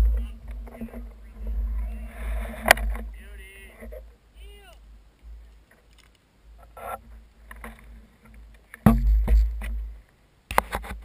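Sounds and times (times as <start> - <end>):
low steady rumble: 0.0 - 10.5
heavy thud with deep rumble: 8.9 - 9.9.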